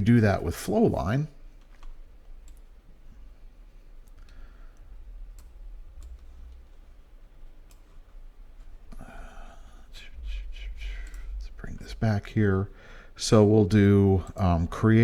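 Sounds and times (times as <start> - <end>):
faint low hum: 0.0 - 15.0
computer mouse clicks: 1.6 - 2.8, 4.0 - 9.1, 11.0 - 11.3.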